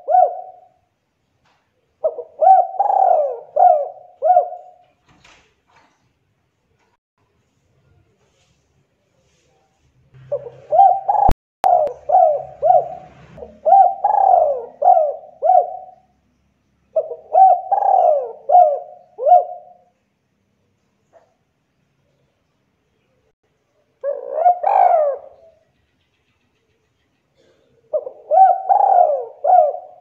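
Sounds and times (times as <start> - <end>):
dove cooing: 0.0 - 0.8, 2.0 - 4.8, 10.2 - 16.1, 17.0 - 19.9, 24.0 - 25.7, 27.4 - 30.0.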